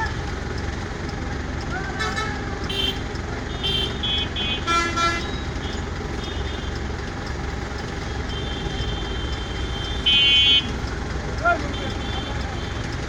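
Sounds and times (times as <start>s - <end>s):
traffic engines running: 0.0s - 13.0s
vehicle horns honking: 1.9s - 7.0s, 7.9s - 13.0s.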